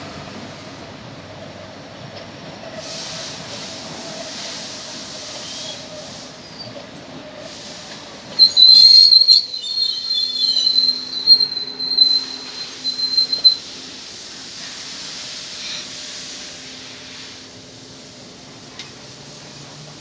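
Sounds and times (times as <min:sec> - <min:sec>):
train rumbling on track: 0:00.0 - 0:20.0
high-pitched wheel squeal: 0:08.3 - 0:14.7.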